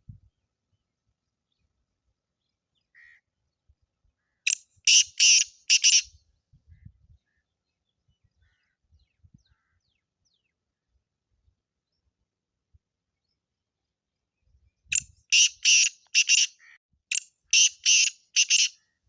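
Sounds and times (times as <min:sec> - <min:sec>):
bird harsh grating call: 0:04.9 - 0:06.1, 0:15.3 - 0:16.8, 0:17.5 - 0:18.8.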